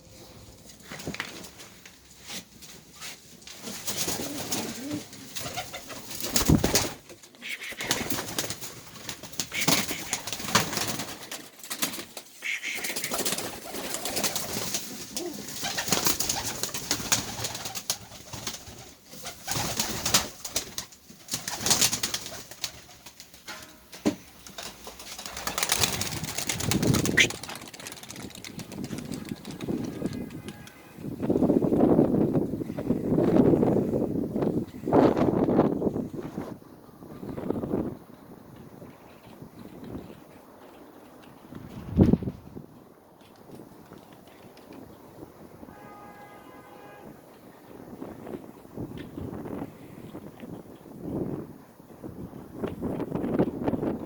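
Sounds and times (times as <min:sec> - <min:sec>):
pigeons cooing: 0:04.2 - 0:06.0, 0:07.3 - 0:08.2, 0:09.4 - 0:10.6, 0:12.4 - 0:14.0, 0:14.8 - 0:16.7
wing claps and scuffs: 0:24.6 - 0:30.9.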